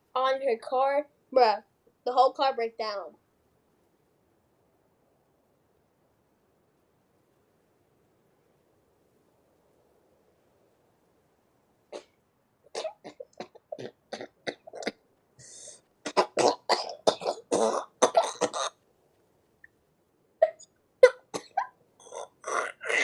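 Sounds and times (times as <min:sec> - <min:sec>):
person coughing or laughing: 0:16.1 - 0:18.7, 0:20.4 - 0:21.7.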